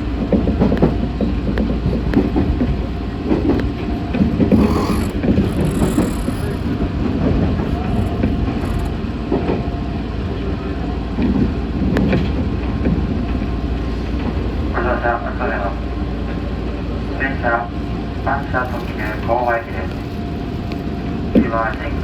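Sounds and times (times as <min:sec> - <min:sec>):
train wheels rumbling on rail: 0:00.0 - 0:22.0
rail joint clicks: 0:00.2 - 0:09.6.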